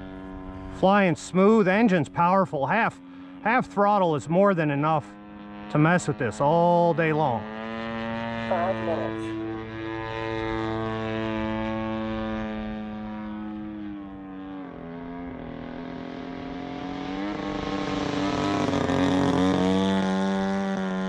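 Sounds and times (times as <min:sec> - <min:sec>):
model plane engine in flight: 0:00.0 - 0:21.0.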